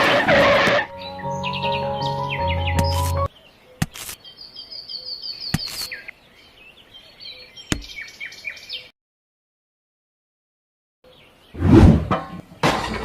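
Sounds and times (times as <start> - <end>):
small birds chirping: 0.9 - 8.9.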